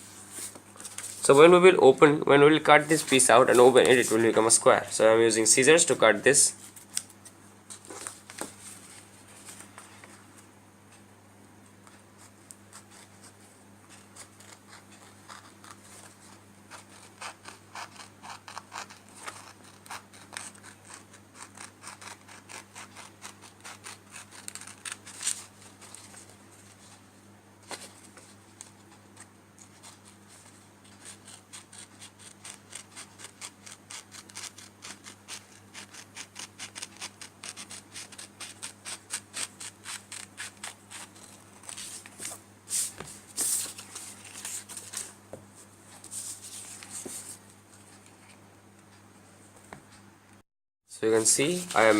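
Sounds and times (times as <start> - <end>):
paper rustling: 0.1 - 1.4, 2.8 - 4.4, 6.6 - 10.3, 39.6 - 45.2, 51.2 - 51.9
scissors snipping paper: 16.7 - 26.0, 30.9 - 41.9.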